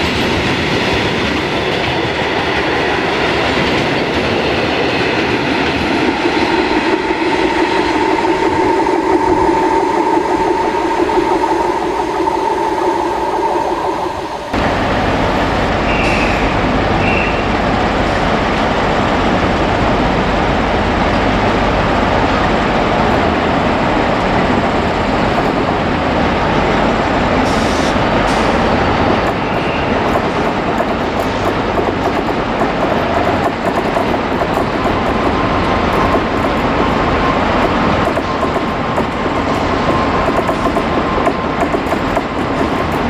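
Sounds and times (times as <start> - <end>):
train wheels clicking: 0.0 - 43.0
train wheels rumbling on rails: 0.0 - 43.0.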